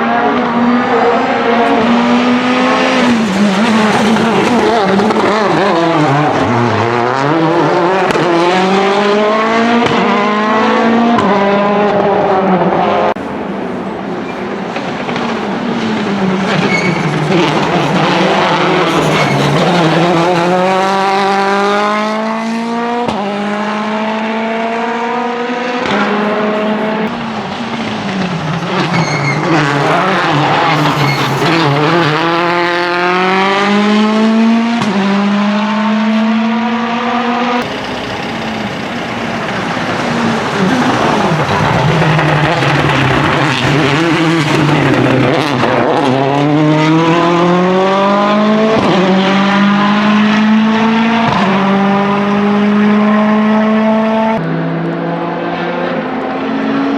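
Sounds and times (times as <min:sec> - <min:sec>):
rally car engine accelerating: 0:00.0 - 0:56.9.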